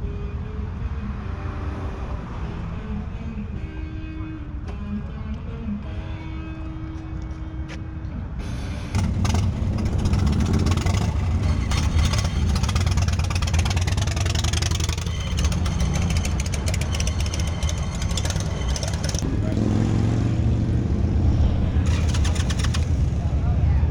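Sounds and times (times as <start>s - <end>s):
motorcycle engine rumbling: 8.4s - 23.9s.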